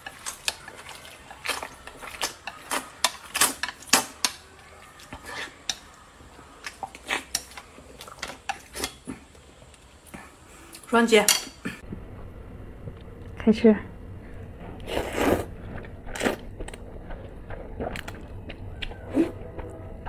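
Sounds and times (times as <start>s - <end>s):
utensils tapping against dishes: 0.0s - 4.5s, 6.6s - 9.1s, 11.2s - 11.6s.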